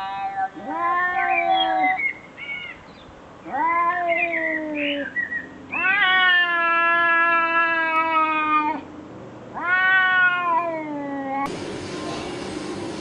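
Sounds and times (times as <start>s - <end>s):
cat meowing: 0.0s - 2.0s, 3.4s - 5.0s, 5.7s - 8.8s, 9.5s - 11.5s.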